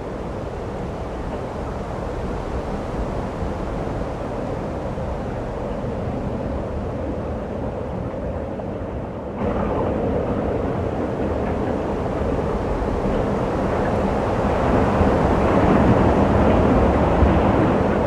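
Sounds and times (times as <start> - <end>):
blizzard wind blowing: 9.4 - 18.0.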